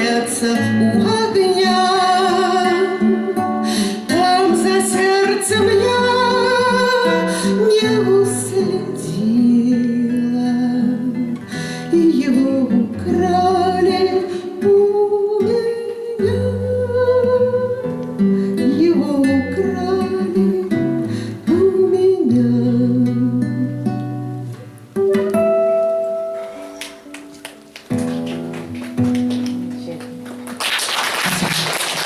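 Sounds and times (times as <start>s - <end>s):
woman singing slow song: 0.0s - 24.2s
acoustic guitar: 0.0s - 32.0s.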